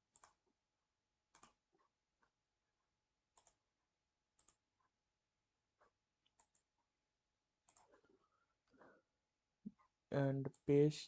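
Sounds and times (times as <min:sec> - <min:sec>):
faint computer mouse clicks: 0:04.4 - 0:04.6, 0:07.6 - 0:08.0.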